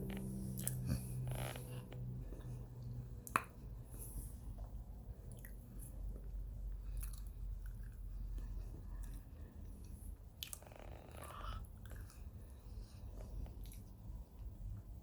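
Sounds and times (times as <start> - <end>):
person chewing and crunching: 0.1 - 1.7, 6.9 - 8.0.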